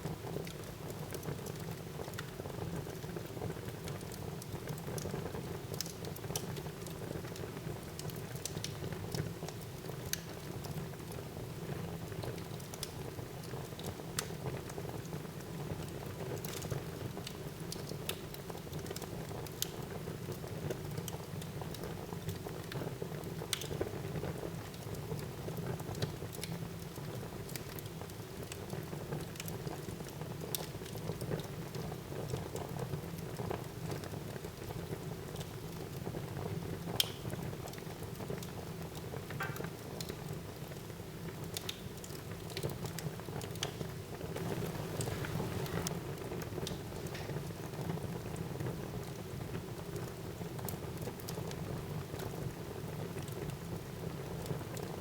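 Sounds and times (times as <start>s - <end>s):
fire crackling and popping: 0.1s - 55.0s
fire low rumble: 44.3s - 48.5s.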